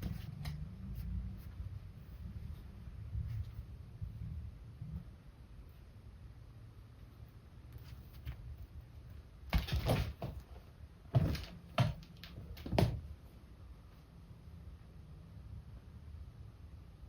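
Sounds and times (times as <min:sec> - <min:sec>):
cats thumping and scuffling: 0:00.0 - 0:00.8, 0:09.4 - 0:13.1.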